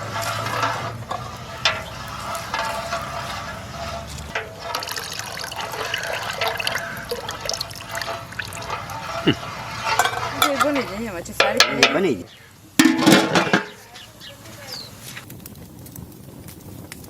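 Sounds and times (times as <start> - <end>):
liquid pouring into container: 4.4 - 10.2.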